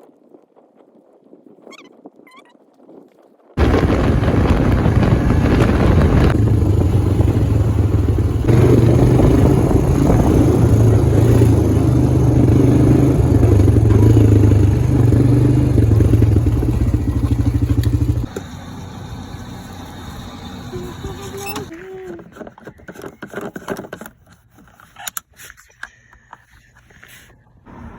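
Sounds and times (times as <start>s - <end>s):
quad engine running: 3.6s - 22.6s.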